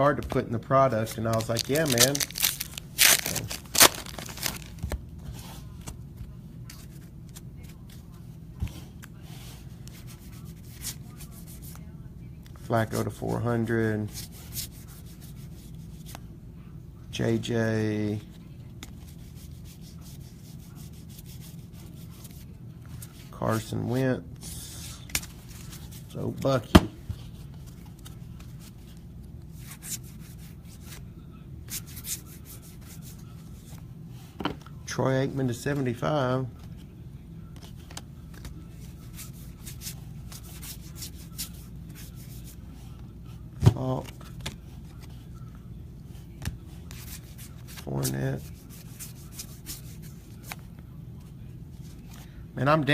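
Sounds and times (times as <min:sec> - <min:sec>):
steady low hum: 0:00.0 - 0:52.9
trading cards rubbing and sliding: 0:00.9 - 0:05.9, 0:27.2 - 0:31.1, 0:37.6 - 0:43.0, 0:46.4 - 0:50.8
trading cards sliding: 0:01.0 - 0:04.9.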